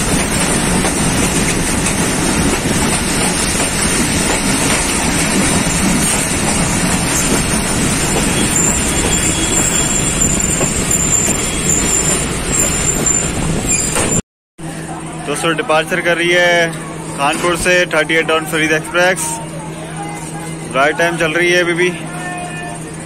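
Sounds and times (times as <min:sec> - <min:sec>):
train wheels rumbling on rails: 0:00.0 - 0:14.2
high metallic wheel squeal: 0:07.1 - 0:14.2.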